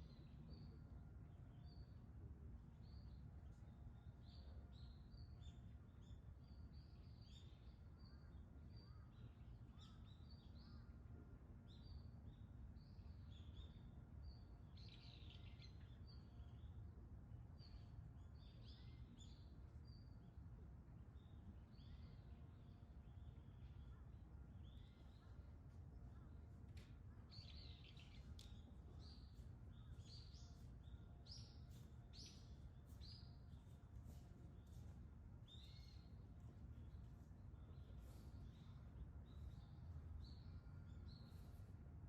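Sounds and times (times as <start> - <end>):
small birds chirping: 21.2 - 42.0.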